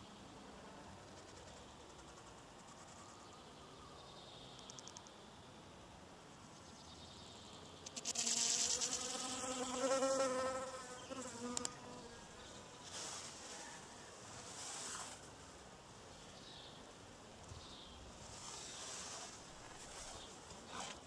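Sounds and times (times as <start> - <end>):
bee buzzing: 7.9 - 12.1
hiss: 12.8 - 13.7, 14.4 - 15.3, 18.2 - 20.2.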